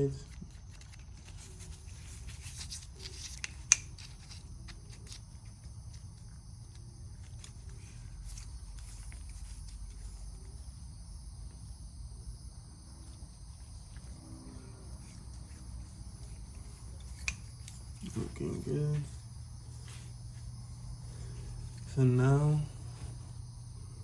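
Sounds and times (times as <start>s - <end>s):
parts clicking when handled: 2.5s - 10.0s
faint high-pitched chirr: 4.0s - 24.0s
low hum: 5.4s - 24.0s.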